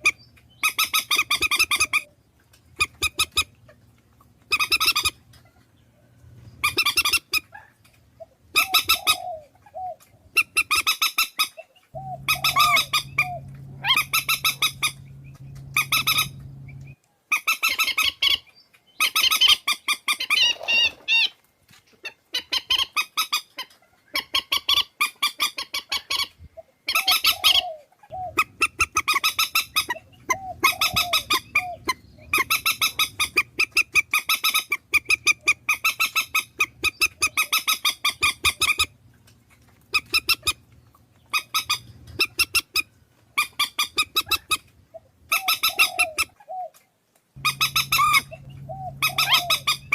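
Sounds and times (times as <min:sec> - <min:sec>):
steady low hum: 0:12.0 - 0:17.0, 0:47.4 - 0:49.9
swamphen honking calls: 0:12.0 - 0:17.0, 0:47.4 - 0:49.9.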